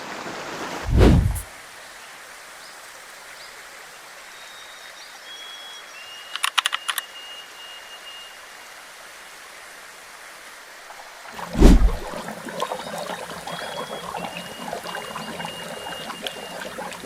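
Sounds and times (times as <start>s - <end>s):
forest stream flowing: 0.0s - 6.3s, 7.0s - 17.0s
sharp clicks: 6.4s - 7.0s.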